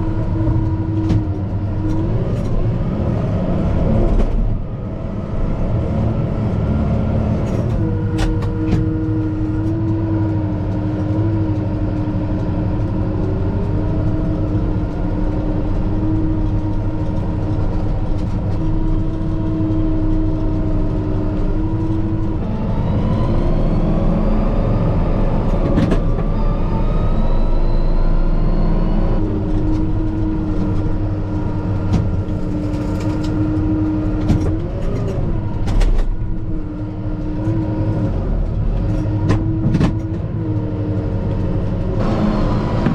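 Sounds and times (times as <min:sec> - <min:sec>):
tractor diesel engine revving: 0:00.0 - 0:42.9.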